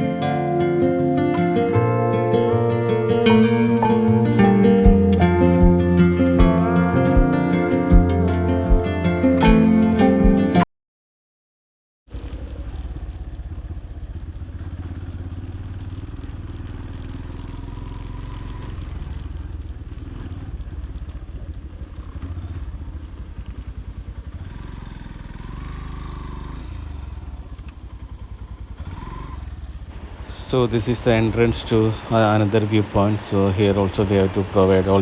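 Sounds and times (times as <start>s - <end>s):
motorcycle engine running: 3.2s - 10.5s, 12.4s - 30.3s.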